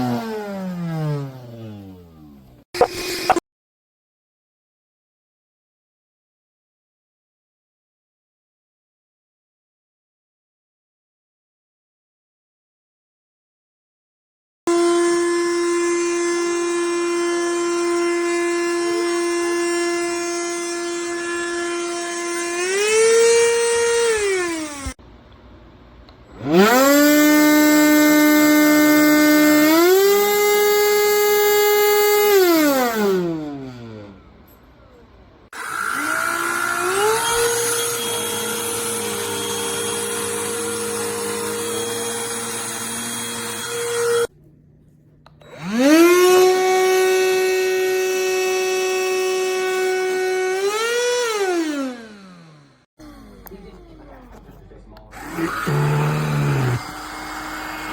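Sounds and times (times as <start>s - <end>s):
handheld vacuum motor whining: 14.7s - 25.0s, 26.4s - 34.6s, 35.5s - 44.3s, 45.2s - 53.8s, 55.2s - 57.9s.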